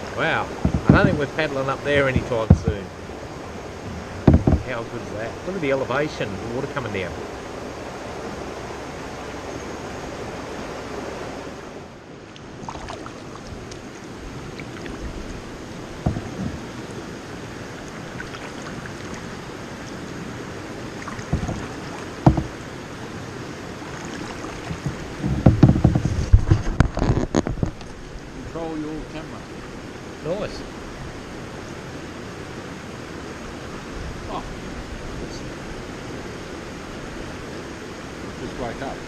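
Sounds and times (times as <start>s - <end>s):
stream rushing down rapids: 0.0s - 39.0s
low thumps: 0.4s - 3.0s, 3.8s - 5.2s, 14.9s - 16.9s, 21.0s - 22.7s, 24.6s - 27.8s
sharp knocks: 0.6s - 1.3s, 2.2s - 2.8s, 3.9s - 4.8s, 16.0s - 16.7s, 21.1s - 22.6s, 24.6s - 27.7s.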